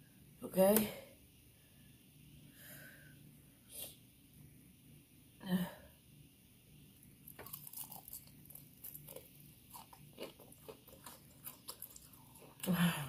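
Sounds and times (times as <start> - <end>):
crunching and chewing fried chicken: 7.2 - 12.9.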